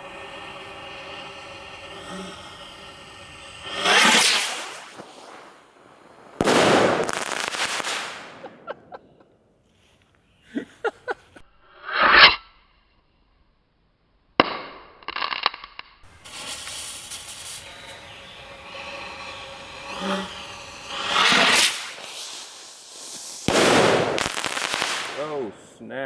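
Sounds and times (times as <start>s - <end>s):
loud blast: 0.0s - 9.0s, 16.1s - 25.8s
long hissing burn: 0.0s - 9.1s, 16.0s - 25.8s
sharp pops: 0.0s - 9.3s, 16.0s - 25.8s.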